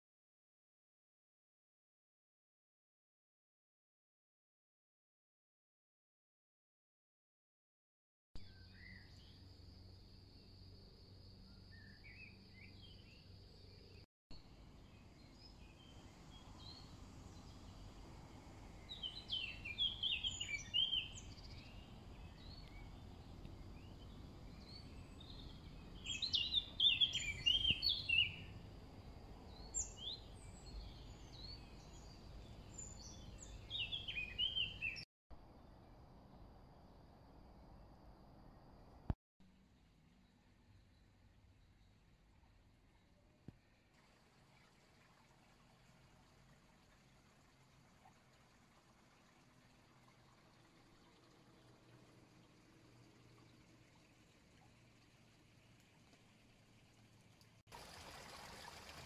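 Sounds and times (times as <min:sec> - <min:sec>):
songbirds chirping: 0:08.4 - 0:36.0
faint outdoor background: 0:08.4 - 0:59.0.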